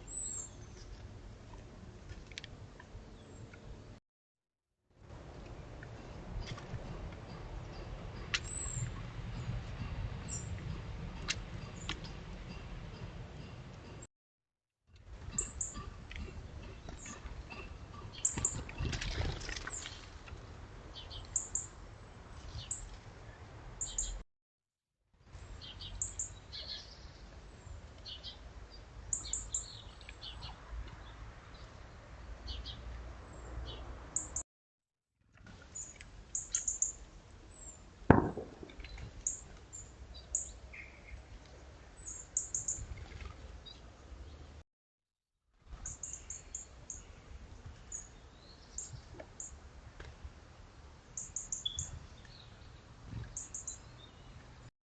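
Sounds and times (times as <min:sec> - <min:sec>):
small birds chirping: 0:00.0 - 0:01.0, 0:35.7 - 0:37.8, 0:45.8 - 0:47.2, 0:51.2 - 0:54.4
sharp knock: 0:38.1 - 0:38.7.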